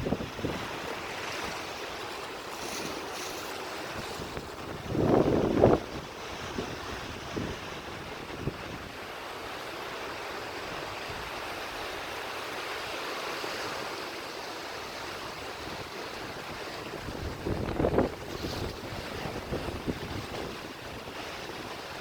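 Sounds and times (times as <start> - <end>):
surf washing onto beach: 0.0 - 22.0.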